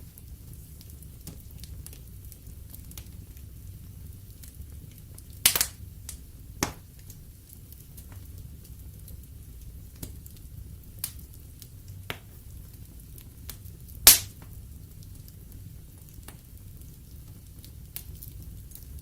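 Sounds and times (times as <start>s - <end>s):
wood fire crackling: 0.0s - 19.0s
fire pops: 4.3s - 19.0s.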